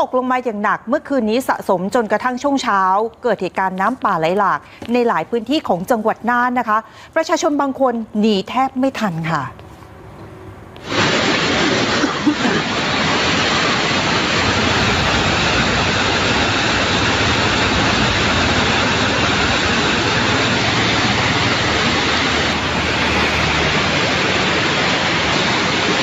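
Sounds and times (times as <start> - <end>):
floodwater rushing: 10.8 - 26.0.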